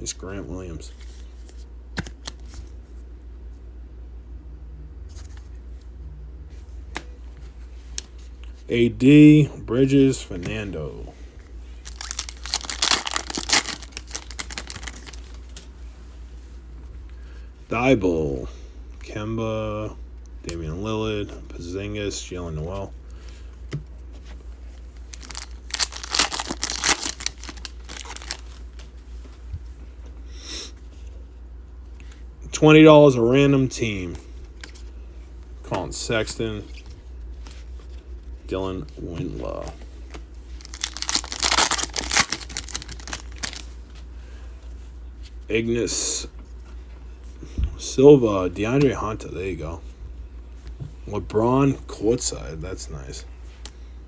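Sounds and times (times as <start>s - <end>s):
cards rustling: 11.8s - 15.7s, 24.2s - 29.0s, 38.8s - 44.0s.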